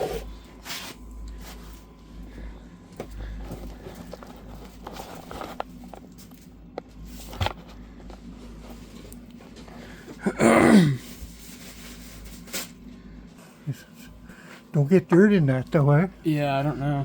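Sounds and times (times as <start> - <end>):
person groaning: 10.2 - 11.0.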